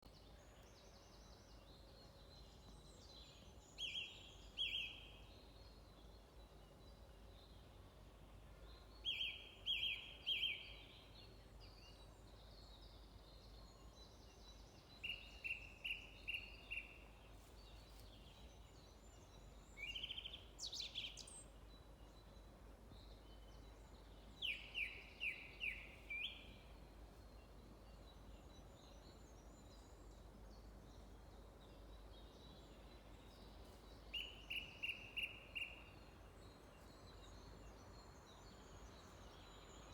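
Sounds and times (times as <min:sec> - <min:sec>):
songbird singing clear notes: 0:17.7 - 0:22.4, 0:23.0 - 0:39.9.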